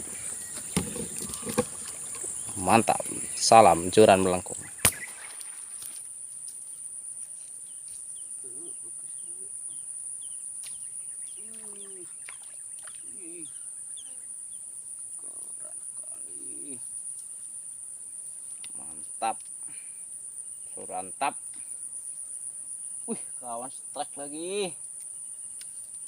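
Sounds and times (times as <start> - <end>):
low bending animal calls: 0.0 - 5.4
high-pitched insect drone: 0.0 - 17.5.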